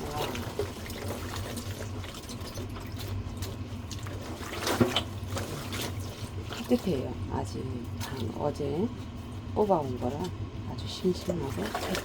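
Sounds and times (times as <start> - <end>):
water sloshing in a basin: 0.0 - 12.0.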